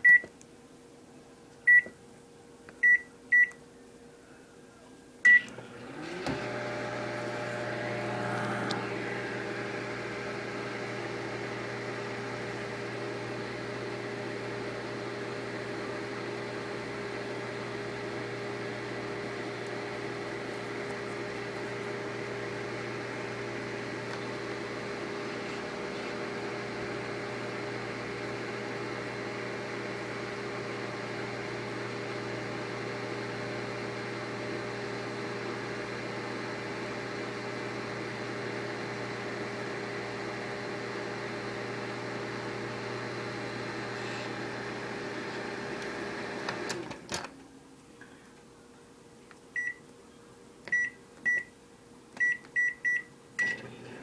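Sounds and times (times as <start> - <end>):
microwave oven humming: 2.8 - 48.8, 49.5 - 54.0.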